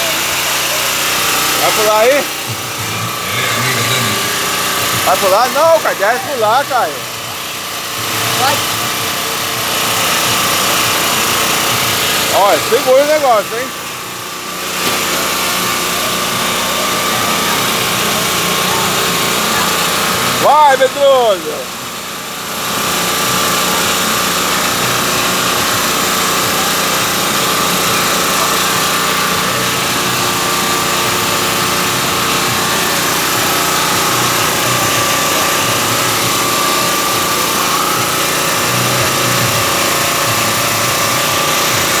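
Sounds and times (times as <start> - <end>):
boat engine running: 0.0 - 42.0.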